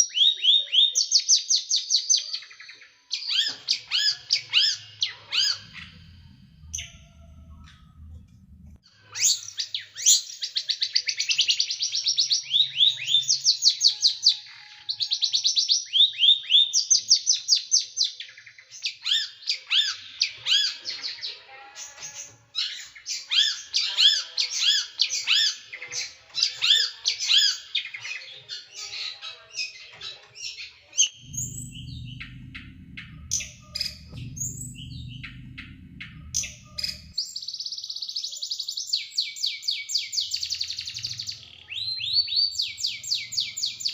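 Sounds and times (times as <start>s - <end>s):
low rumble: 5.3s - 8.8s, 31.1s - 37.2s
hooked bird chirps: 31.0s - 37.4s.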